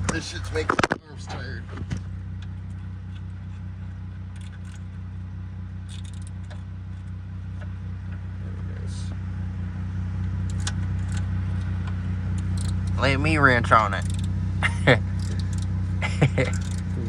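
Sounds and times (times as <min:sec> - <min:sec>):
engine idling: 0:00.0 - 0:17.0
hand tools clinking on metal: 0:16.3 - 0:17.0.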